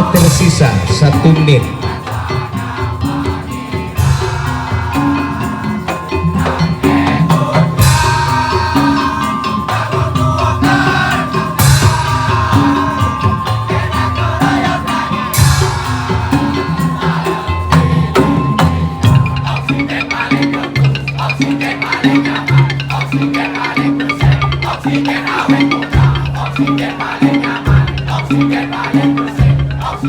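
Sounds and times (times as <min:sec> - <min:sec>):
drums beating low pattern: 0:00.0 - 0:02.5
held high melody line: 0:00.0 - 0:30.0.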